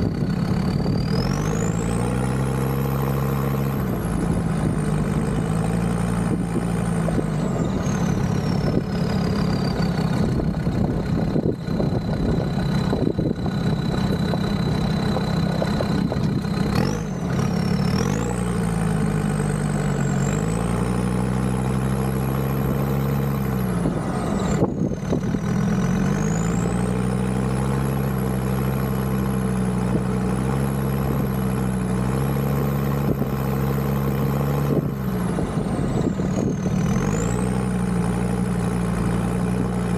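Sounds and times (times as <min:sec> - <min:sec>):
diesel engine running while driving: 0:00.0 - 0:39.9.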